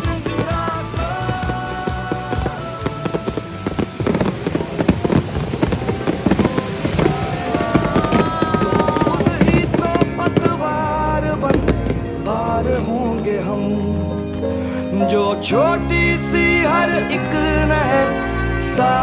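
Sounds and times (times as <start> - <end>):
fireworks bangs and crackles: 0.0 - 13.7
song playing: 0.0 - 19.0.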